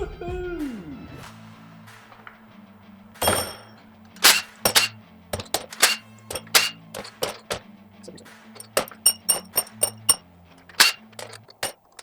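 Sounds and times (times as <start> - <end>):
faint background music: 0.0 - 12.0
metal parts and tools clanking: 3.2 - 12.0.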